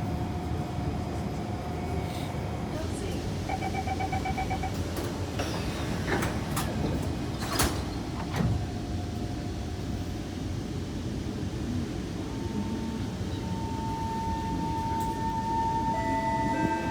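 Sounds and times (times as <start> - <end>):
train carriage rumble: 0.0 - 16.9
train door chime beeping: 3.2 - 8.7, 12.2 - 16.9
sliding doors clunking shut: 4.0 - 9.3.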